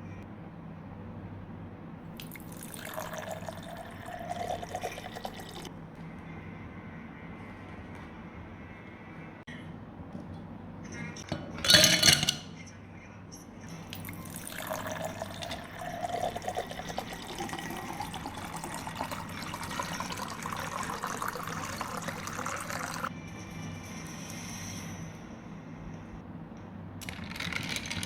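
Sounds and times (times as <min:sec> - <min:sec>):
liquid pouring into container: 0:02.2 - 0:05.7, 0:13.9 - 0:23.1.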